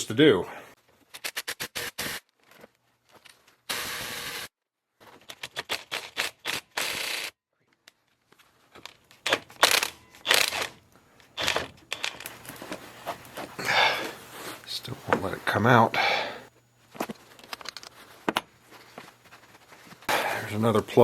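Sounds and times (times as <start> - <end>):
hand ratchet clicking: 9.2 - 12.3.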